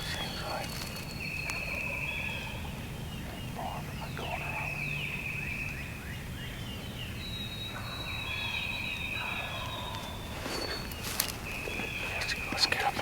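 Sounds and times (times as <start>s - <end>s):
high-pitched songbird calls: 0.0s - 13.0s
distant turkey gobbling: 7.7s - 13.0s.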